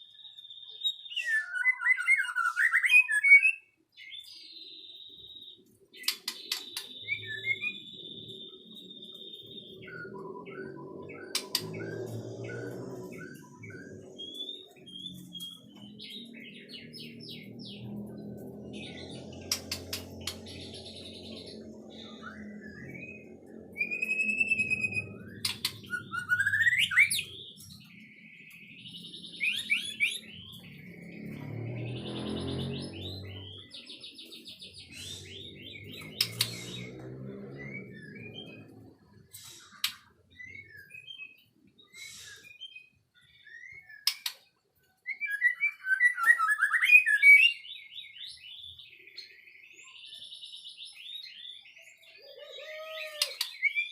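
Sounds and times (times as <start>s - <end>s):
bird singing whistled phrases: 0.3s - 16.2s, 20.2s - 27.9s, 28.8s - 30.6s, 39.6s - 44.3s, 45.0s - 48.9s, 49.8s - 53.9s.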